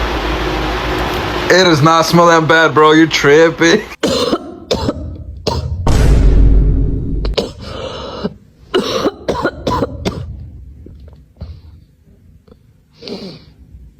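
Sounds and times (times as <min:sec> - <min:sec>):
rumbling blast on microphone: 0:05.2 - 0:07.5.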